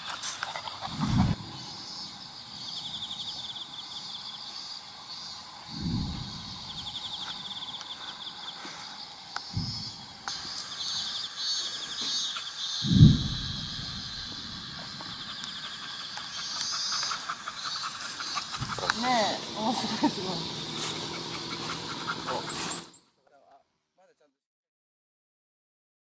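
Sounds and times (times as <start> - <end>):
insects trilling: 0.0 - 23.1
low thuds: 9.5 - 10.2, 12.8 - 15.1.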